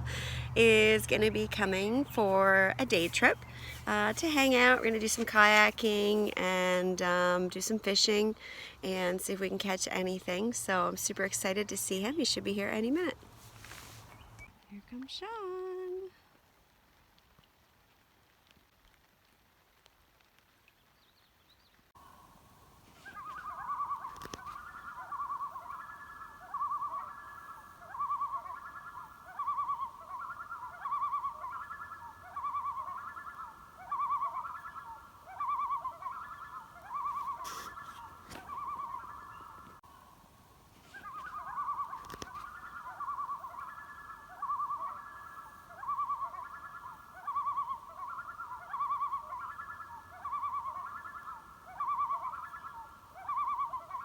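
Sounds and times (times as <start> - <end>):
animal trilled call: 23.0 - 40.0, 40.8 - 54.0.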